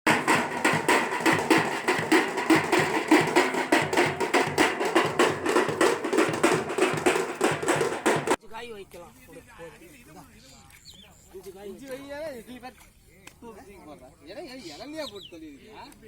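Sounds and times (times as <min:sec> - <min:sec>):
fast steady drumming: 0:00.0 - 0:08.4.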